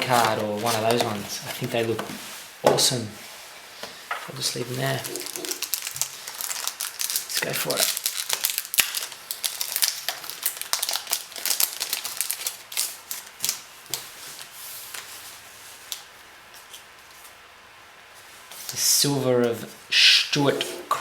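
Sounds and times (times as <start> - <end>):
foil card pack tearing and crinkling: 0.0 - 1.8, 4.7 - 14.5.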